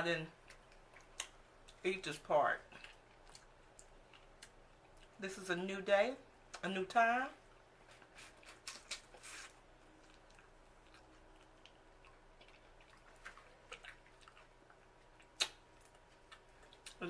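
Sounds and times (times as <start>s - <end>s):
quiet chewing: 0.3s - 1.9s, 2.6s - 5.2s, 7.4s - 17.0s
wet mouth clicks and smacks: 0.4s - 1.8s, 10.1s - 17.0s.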